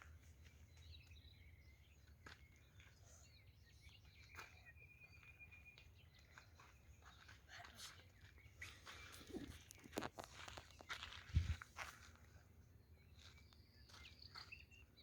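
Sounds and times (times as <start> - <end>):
faint birdsong: 0.0 - 15.0.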